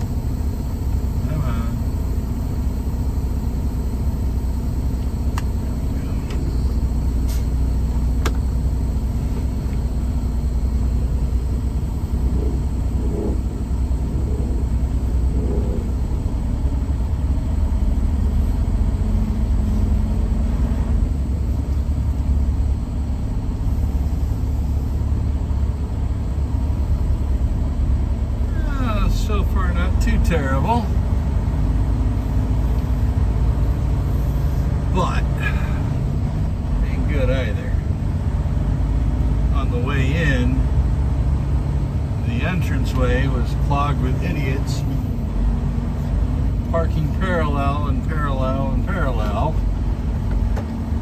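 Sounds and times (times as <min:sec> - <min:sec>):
diesel truck engine rumbling: 0:00.0 - 0:51.0.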